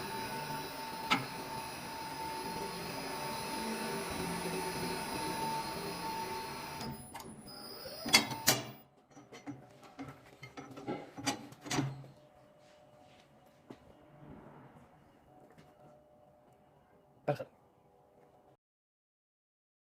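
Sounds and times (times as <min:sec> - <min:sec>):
forging machine humming: 0:00.0 - 0:08.8.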